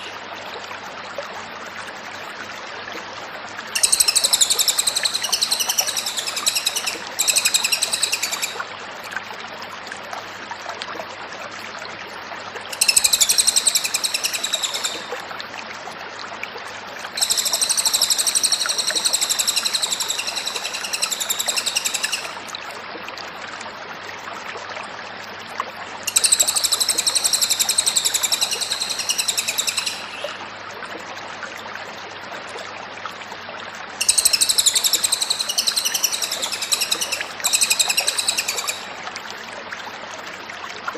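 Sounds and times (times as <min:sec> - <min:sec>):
songbird warbling: 0:03.8 - 0:08.6, 0:12.7 - 0:15.2, 0:17.1 - 0:22.4, 0:26.1 - 0:30.4, 0:34.0 - 0:39.0.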